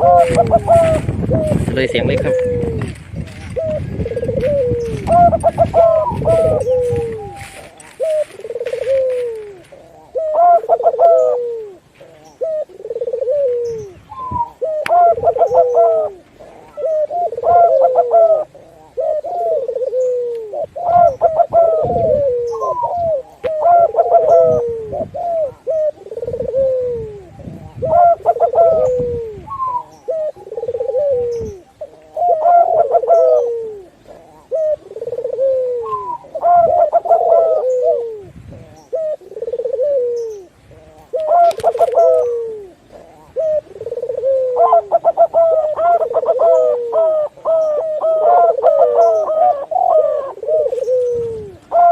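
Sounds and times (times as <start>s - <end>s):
doves cooing: 0.0s - 51.9s.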